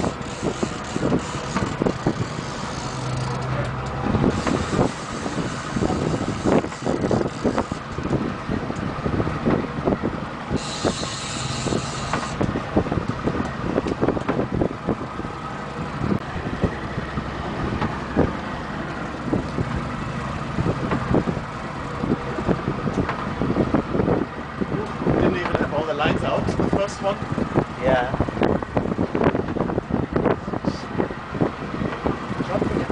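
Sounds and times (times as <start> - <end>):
hull knocking on choppy water: 0.0 - 9.8, 12.1 - 15.0, 17.4 - 23.9, 24.9 - 25.7
boat engine running: 0.0 - 32.9
wind buffeting microphone: 0.0 - 32.9.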